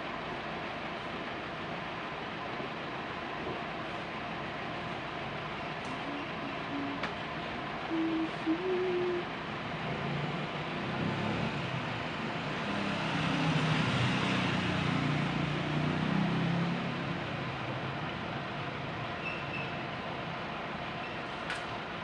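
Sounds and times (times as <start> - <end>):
steady noisy background: 0.0 - 12.7
engine running: 0.0 - 22.0.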